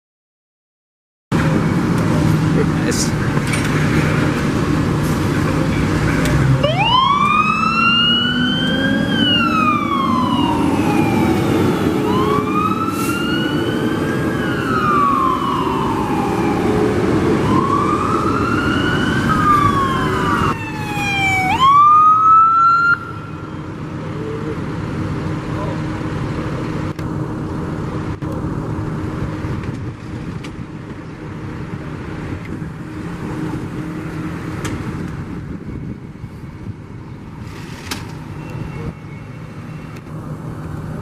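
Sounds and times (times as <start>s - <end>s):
truck engine and road noise: 1.3s - 41.0s
fire engine siren wailing: 6.5s - 25.0s.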